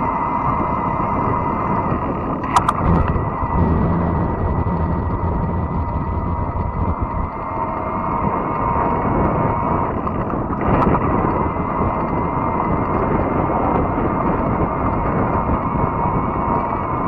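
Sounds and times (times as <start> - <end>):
thin steady whine: 0.0 - 17.0
wind on microphone: 0.0 - 17.0
brief click: 2.4 - 3.1.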